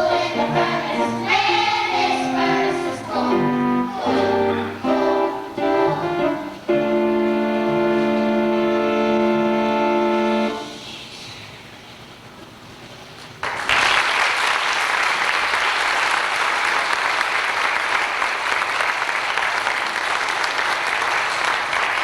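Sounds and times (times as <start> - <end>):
audience applauding: 13.4 - 22.0.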